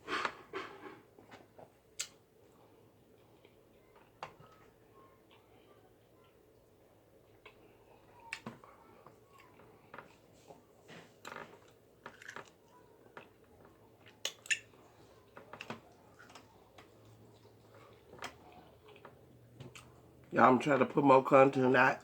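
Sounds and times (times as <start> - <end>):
person chewing: 0.1 - 4.7, 7.3 - 20.3.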